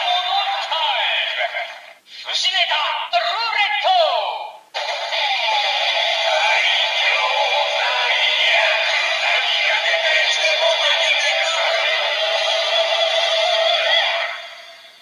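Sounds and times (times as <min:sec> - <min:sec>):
toy speaker playing synthetic song: 0:04.8 - 0:15.0.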